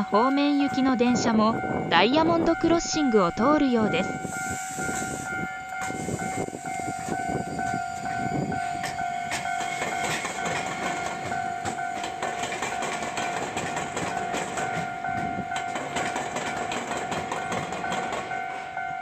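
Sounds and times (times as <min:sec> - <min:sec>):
level crossing alarm ringing: 0:00.0 - 0:19.0
train wheels clacking: 0:04.2 - 0:19.0.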